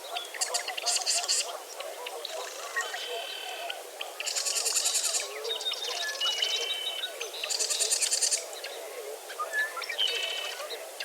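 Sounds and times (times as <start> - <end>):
birds calling and singing: 9.4 - 10.8.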